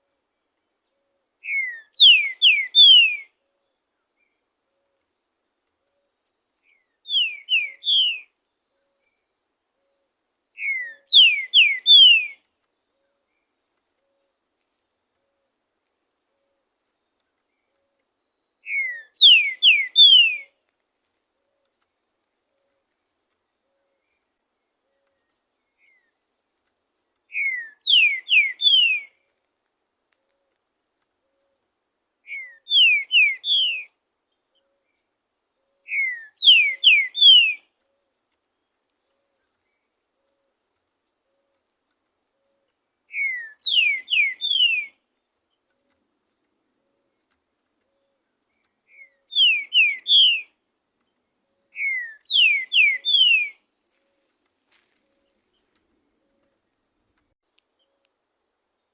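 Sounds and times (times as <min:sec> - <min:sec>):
bird singing whistled notes: 0:00.8 - 0:05.0, 0:05.9 - 0:10.0, 0:10.6 - 0:12.4, 0:17.5 - 0:20.6, 0:27.3 - 0:29.2, 0:32.2 - 0:37.7, 0:43.1 - 0:45.6, 0:47.9 - 0:50.6, 0:51.5 - 0:53.6.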